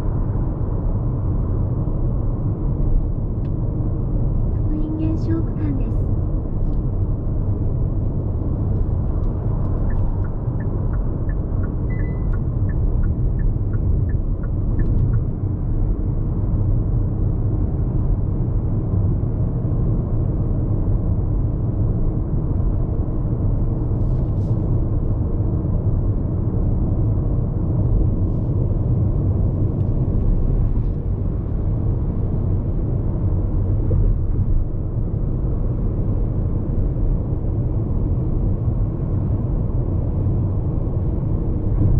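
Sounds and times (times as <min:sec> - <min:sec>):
car cabin road and wind noise: 0:00.0 - 0:41.9.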